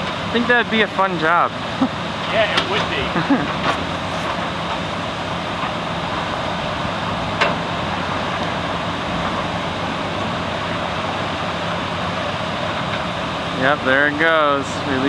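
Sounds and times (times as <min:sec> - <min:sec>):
excavator diesel engine running: 0:00.0 - 0:15.0
floodwater rushing: 0:00.0 - 0:15.0.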